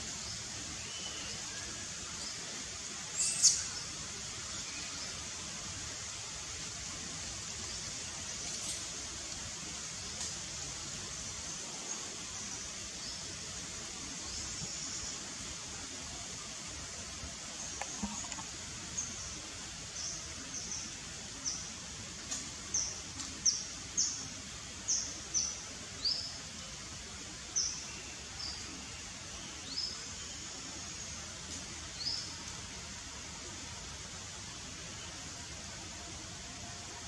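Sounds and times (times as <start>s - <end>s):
background hiss: 0.0s - 37.0s
bird chirping: 3.2s - 3.8s.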